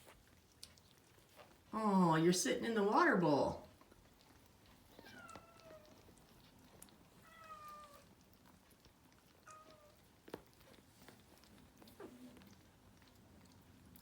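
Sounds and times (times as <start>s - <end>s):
cat meowing: 5.0s - 6.0s, 7.2s - 8.1s, 9.4s - 10.0s.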